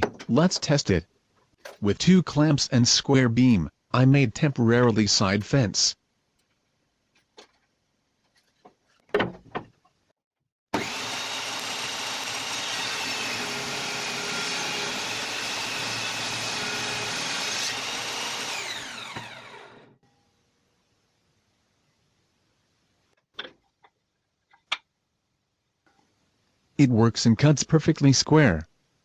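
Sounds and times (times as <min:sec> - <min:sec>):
circular saw whining: 0:10.8 - 0:20.0.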